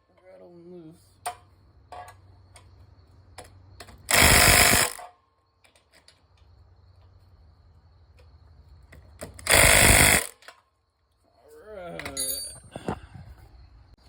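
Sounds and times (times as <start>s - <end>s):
impact wrench burst: 4.0s - 5.1s, 9.3s - 10.5s.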